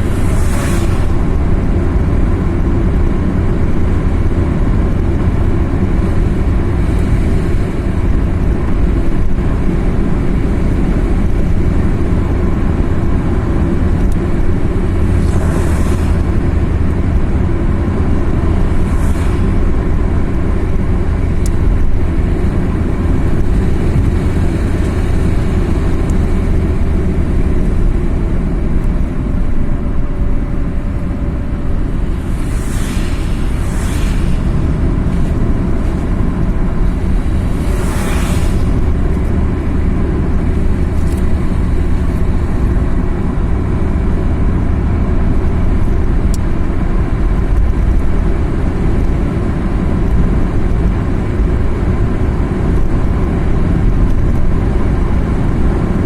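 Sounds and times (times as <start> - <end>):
brief whooshes: 0.0 - 1.3, 31.9 - 36.1, 36.9 - 39.5
car engine and tyre rumble: 0.0 - 56.0.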